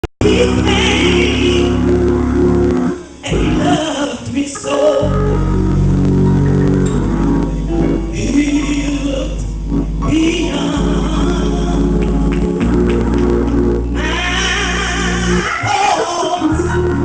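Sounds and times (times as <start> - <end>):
bass guitar: 0.0 - 17.0
person singing: 0.2 - 2.0, 3.2 - 5.6, 7.7 - 12.6, 14.0 - 17.0
guitar: 0.2 - 17.0.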